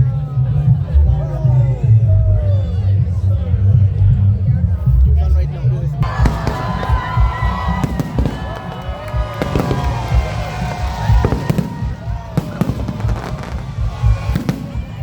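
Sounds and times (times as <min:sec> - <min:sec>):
fireworks banging: 0:06.0 - 0:15.0
whistling fireworks: 0:06.0 - 0:15.0.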